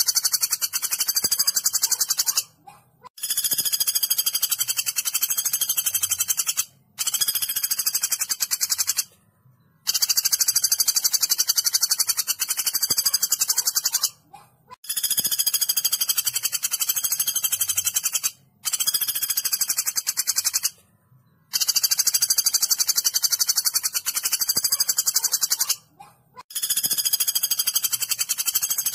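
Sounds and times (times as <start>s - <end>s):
woodpecker rattling trills: 0.0s - 9.1s, 9.8s - 20.8s, 21.5s - 28.9s.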